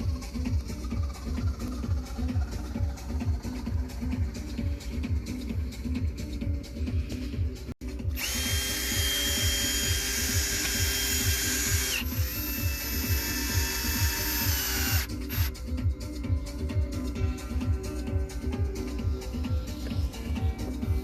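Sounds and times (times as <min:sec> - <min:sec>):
background music with beat: 0:00.0 - 0:21.0
power tool motor whining: 0:08.1 - 0:15.5.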